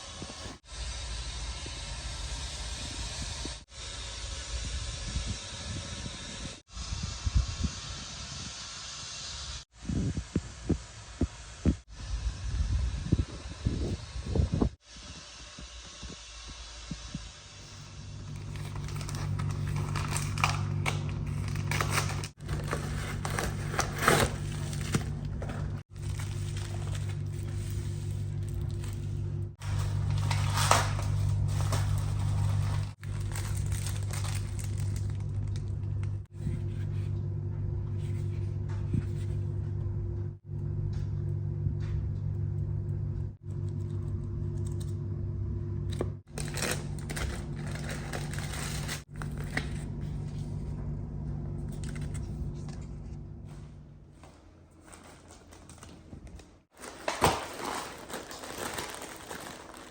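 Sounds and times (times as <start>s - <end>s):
appliance electrical hum: 0.0s - 59.9s
crinkling: 18.3s - 36.3s, 46.3s - 50.4s, 51.6s - 59.9s
handling noises: 18.3s - 36.6s, 51.6s - 59.9s.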